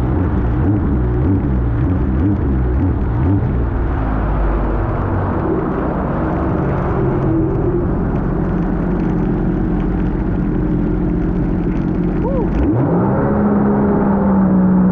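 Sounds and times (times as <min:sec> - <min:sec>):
jet ski engine running: 0:00.0 - 0:14.9.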